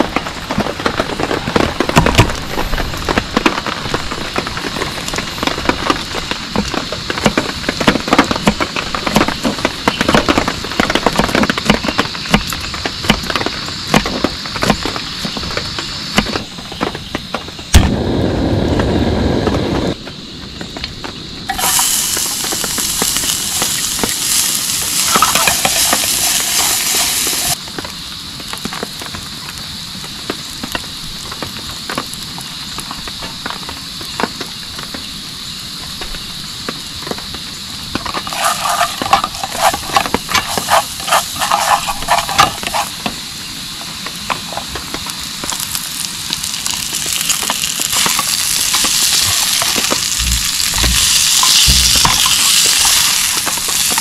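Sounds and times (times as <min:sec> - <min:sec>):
heavy rain pattering: 0:00.0 - 0:17.6, 0:21.4 - 0:35.0, 0:42.9 - 0:54.0
steady hissing: 0:21.1 - 0:54.0.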